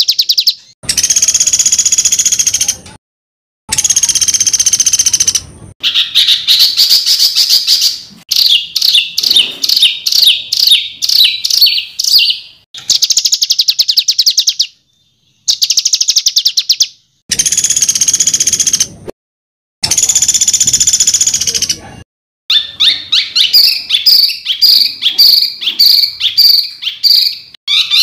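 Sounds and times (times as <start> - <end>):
songbird harsh trills: 3.7 - 18.9, 22.5 - 28.0.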